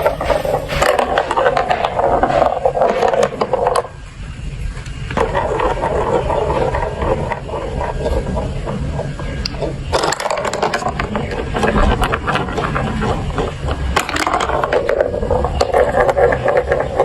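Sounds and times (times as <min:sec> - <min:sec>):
marbles rolling rattle: 0:05.1 - 0:17.0
plastic marble run clattering: 0:05.1 - 0:17.0.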